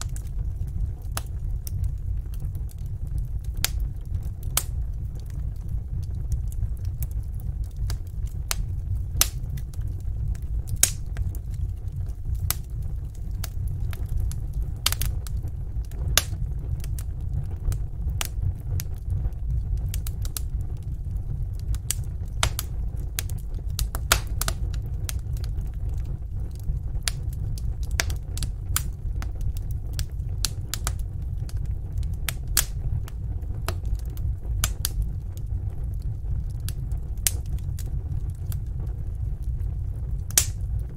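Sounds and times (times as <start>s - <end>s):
fire crackling and popping: 0.0s - 40.9s
steady low rumble: 0.0s - 40.9s.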